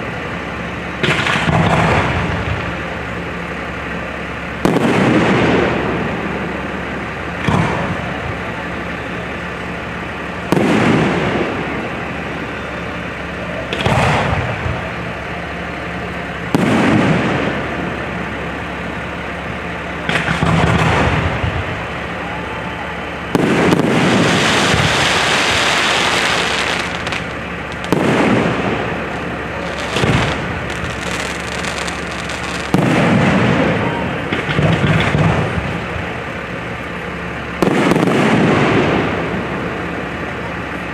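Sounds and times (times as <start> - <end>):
fireworks crackling: 0.0 - 40.7
fireworks booming: 0.9 - 36.6, 37.5 - 40.2.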